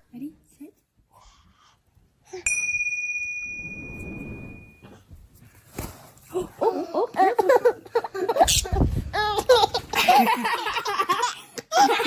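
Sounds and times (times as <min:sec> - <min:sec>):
small metal bell ringing: 0:02.4 - 0:04.8.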